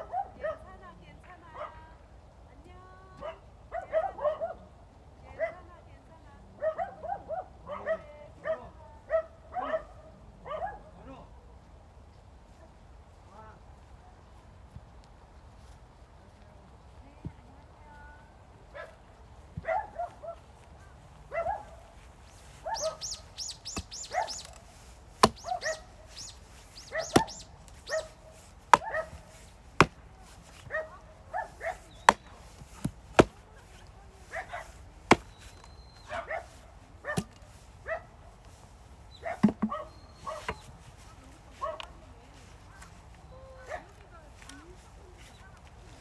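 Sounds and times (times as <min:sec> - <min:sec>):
dog barking: 0:00.0 - 0:00.7, 0:03.2 - 0:04.6, 0:06.6 - 0:10.9, 0:19.6 - 0:20.4, 0:21.3 - 0:21.8, 0:22.6 - 0:23.2, 0:24.0 - 0:24.4, 0:25.2 - 0:25.8, 0:26.9 - 0:28.2, 0:28.8 - 0:29.2, 0:30.7 - 0:31.9, 0:34.3 - 0:34.7, 0:36.1 - 0:38.1, 0:39.2 - 0:40.6, 0:41.6 - 0:41.9
axe splitting firewood: 0:22.8 - 0:30.8, 0:31.4 - 0:35.7, 0:36.5 - 0:37.6, 0:39.3 - 0:40.7.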